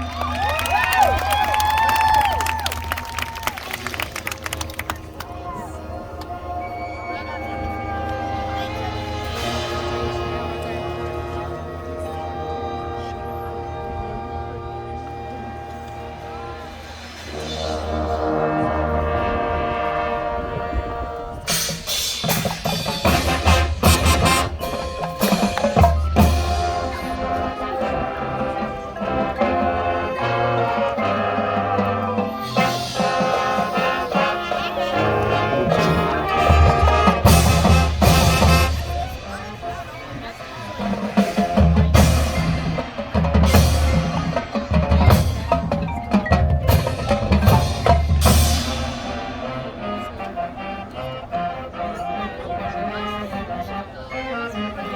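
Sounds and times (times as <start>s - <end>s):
marching band ensemble hits: 7.4s - 51.7s
mallet percussion: 40.8s - 49.8s.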